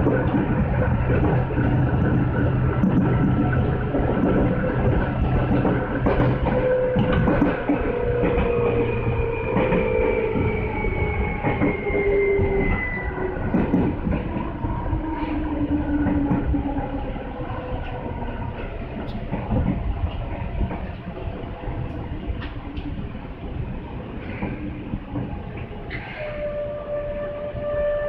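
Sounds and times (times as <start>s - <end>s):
electric train traction motor whine: 0.0s - 19.4s.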